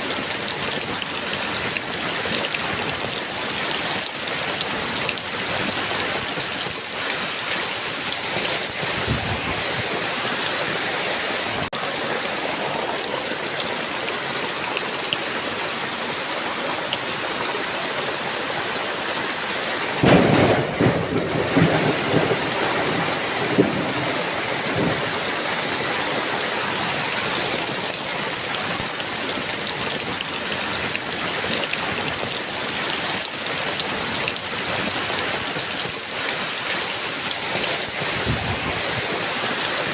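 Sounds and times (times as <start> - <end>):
heavy rain falling: 0.0 - 39.9
thunder rumbling: 8.6 - 10.3, 20.0 - 25.7.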